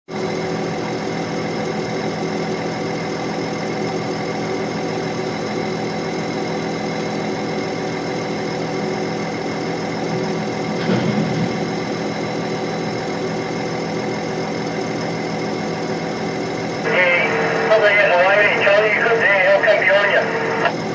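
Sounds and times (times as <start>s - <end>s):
heavy diesel engine running: 0.1s - 20.9s
brief loud knock: 10.8s - 12.1s.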